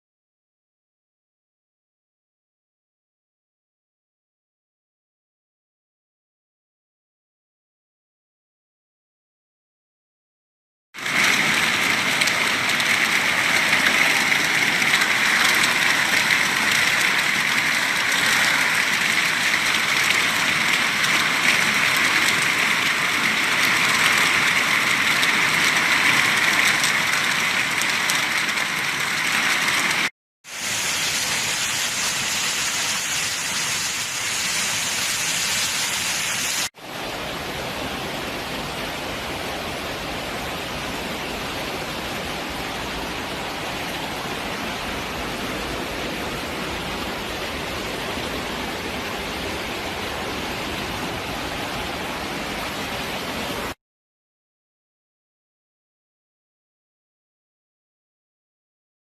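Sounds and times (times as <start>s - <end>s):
running water: 11.0s - 53.5s
heavy rain: 11.0s - 53.8s.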